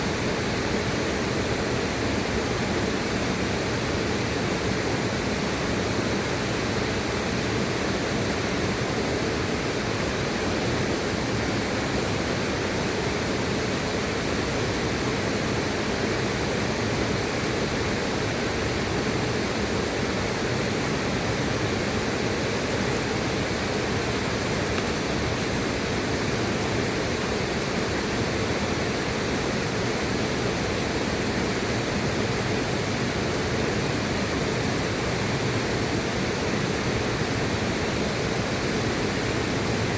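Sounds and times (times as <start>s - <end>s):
river flowing: 8.6s - 39.9s.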